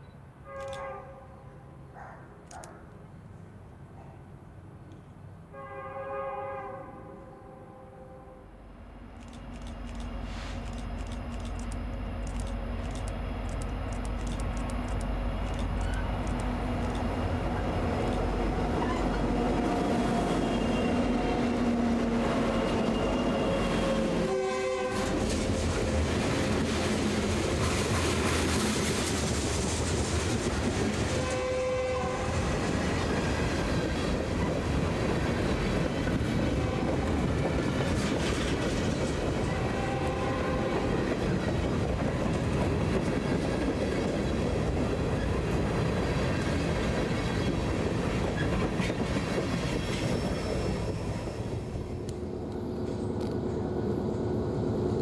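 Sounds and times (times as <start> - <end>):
train horn blast: 0.4 - 1.9, 5.5 - 8.6, 18.7 - 26.0, 31.2 - 32.6, 36.5 - 37.4, 39.4 - 41.0
freight train wheels rumbling: 8.8 - 55.0.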